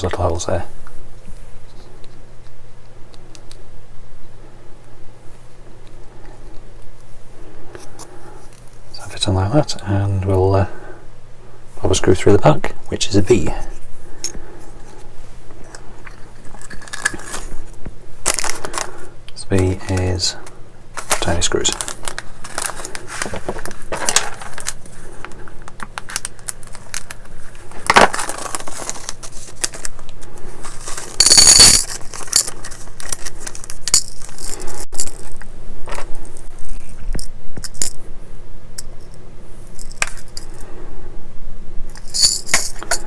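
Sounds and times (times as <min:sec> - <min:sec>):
small metal pieces clinking: 0:30.8 - 0:35.4, 0:41.9 - 0:43.0.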